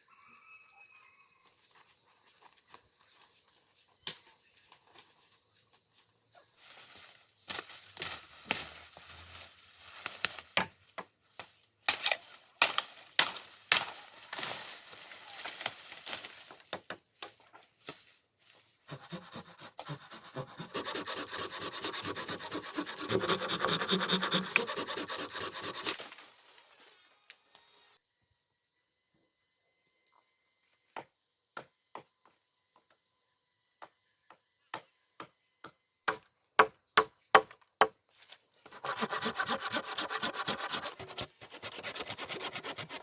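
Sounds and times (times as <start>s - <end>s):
rapid wood scraping: 18.9s - 26.0s, 38.7s - 43.0s.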